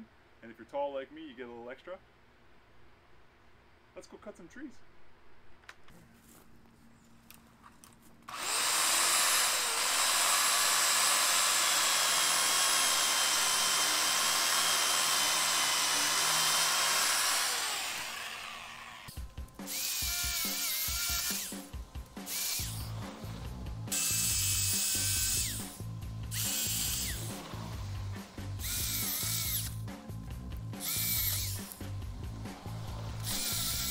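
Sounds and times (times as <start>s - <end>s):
electric pole saw whining: 8.3s - 29.8s, 30.8s - 33.9s.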